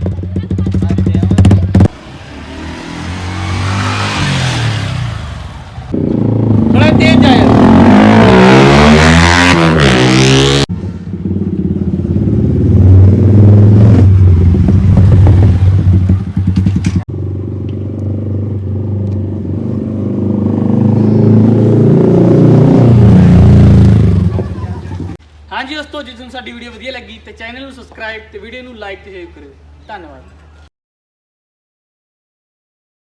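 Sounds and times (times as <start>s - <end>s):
motorcycle engine passing and revving: 0.0s - 25.2s.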